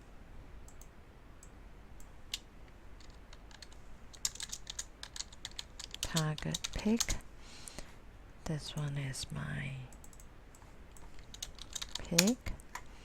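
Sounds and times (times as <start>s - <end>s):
computer keyboard typing: 3.0s - 7.2s, 10.0s - 12.5s.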